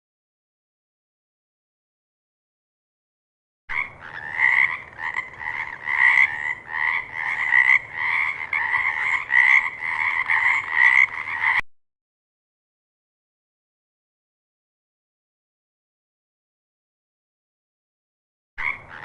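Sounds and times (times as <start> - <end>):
frog croaking: 3.7 - 11.6, 18.6 - 19.0.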